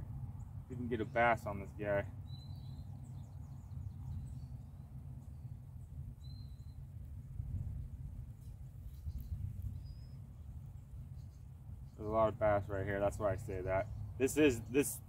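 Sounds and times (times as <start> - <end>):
low outdoor rumble: 0.0 - 15.0
small bird chirping: 2.2 - 12.2.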